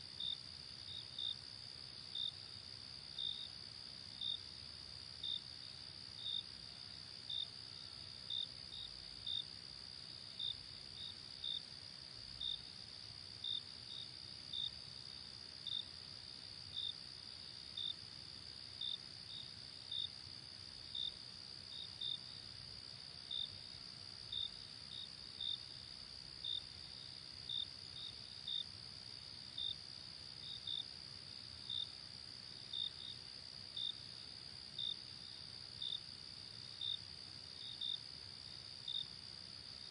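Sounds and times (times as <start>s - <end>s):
sharp cricket chirp: 0.2s - 39.9s.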